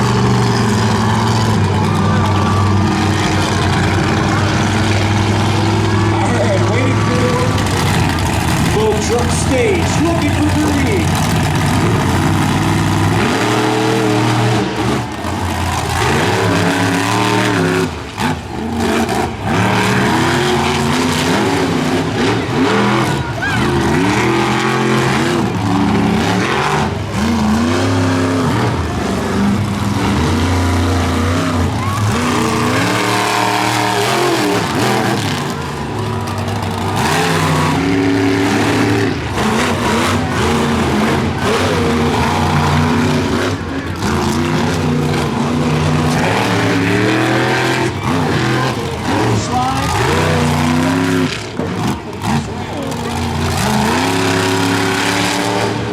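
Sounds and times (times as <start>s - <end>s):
monster truck engines revving: 0.0s - 55.9s.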